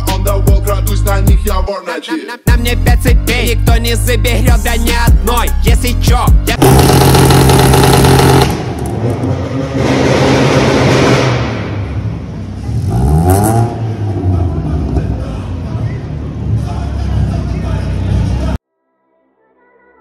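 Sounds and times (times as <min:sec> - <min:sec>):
car engine revving: 0:06.5 - 0:16.6.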